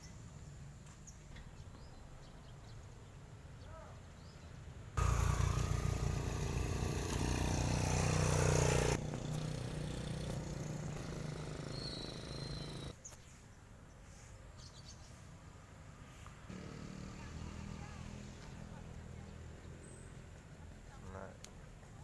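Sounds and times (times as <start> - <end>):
vehicle engine deep rumble: 5.0 - 12.9.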